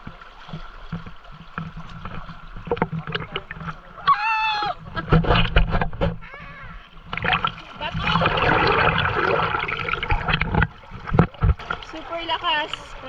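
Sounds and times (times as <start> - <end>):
river water rushing and splashing: 6.9 - 13.0.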